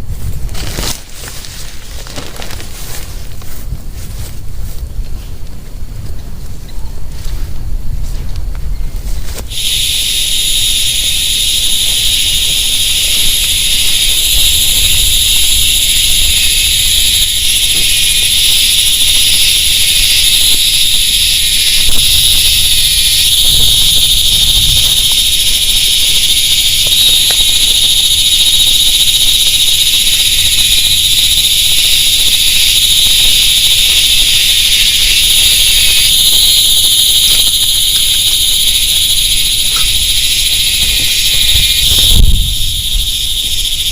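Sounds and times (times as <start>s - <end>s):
wind rumble on microphone: 0.0s - 43.9s
night insects buzzing: 9.3s - 43.9s.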